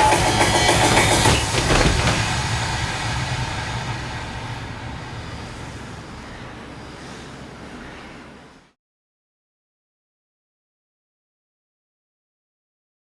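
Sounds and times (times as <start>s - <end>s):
rumbling noise: 0.3s - 6.2s.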